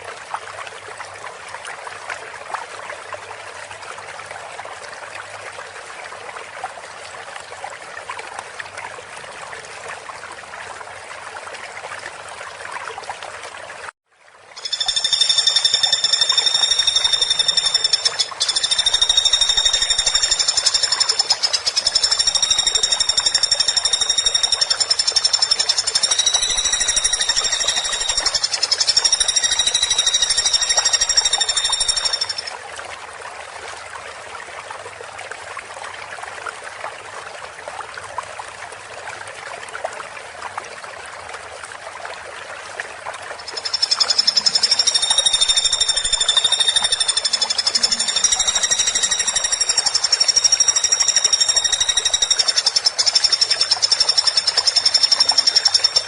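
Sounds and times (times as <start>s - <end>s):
faint fast ticking: 14.6s - 32.5s, 43.5s - 56.0s
woodpecker rattling call: 14.6s - 32.5s, 43.5s - 56.0s.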